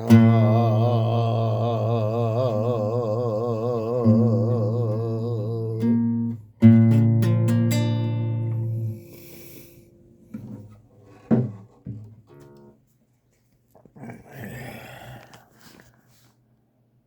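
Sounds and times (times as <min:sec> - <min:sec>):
acoustic guitar chord ringing: 0:05.8 - 0:10.2.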